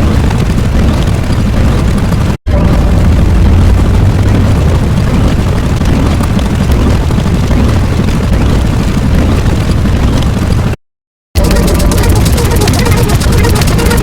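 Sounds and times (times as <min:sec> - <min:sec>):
low explosion rumble: 0:00.0 - 0:10.8.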